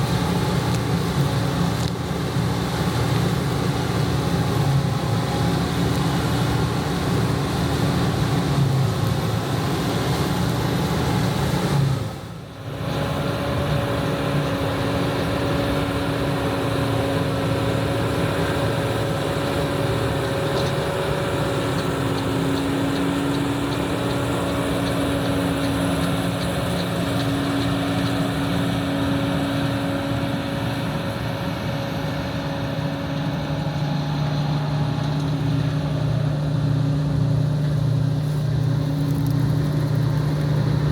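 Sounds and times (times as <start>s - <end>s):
combine engine drone: 0.0s - 40.9s
mechanical whine: 12.4s - 40.9s.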